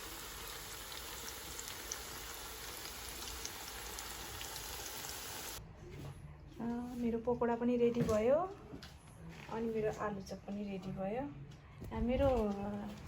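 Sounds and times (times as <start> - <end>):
food deep-frying in oil: 0.0 - 5.6.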